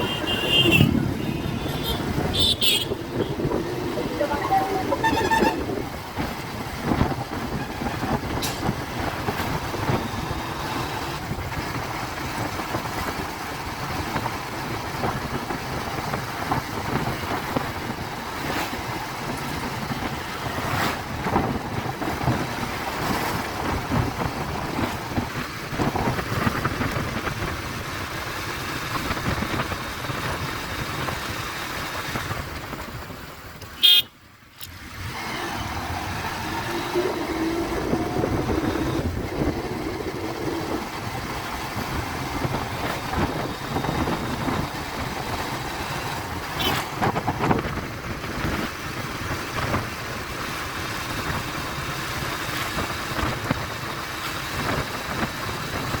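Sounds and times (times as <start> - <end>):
motorcycle engine running: 0.0 - 34.1
wind and road noise: 0.0 - 56.0.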